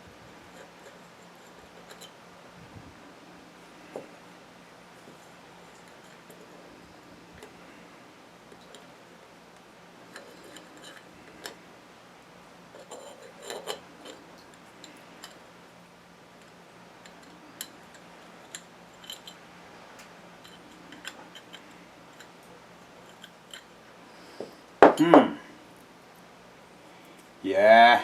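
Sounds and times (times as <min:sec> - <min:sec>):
steady low hum: 0:00.0 - 0:28.0
small metal parts clinking: 0:00.5 - 0:02.2, 0:10.1 - 0:11.6, 0:12.7 - 0:15.4, 0:17.0 - 0:19.4, 0:20.4 - 0:22.4.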